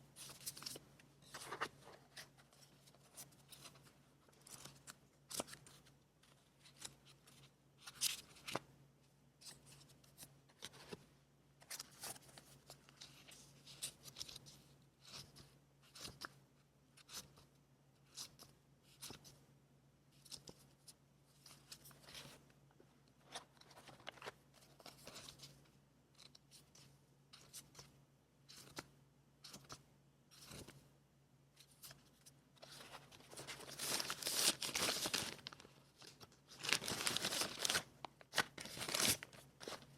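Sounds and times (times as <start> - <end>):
paper rustling: 31.7 - 39.9.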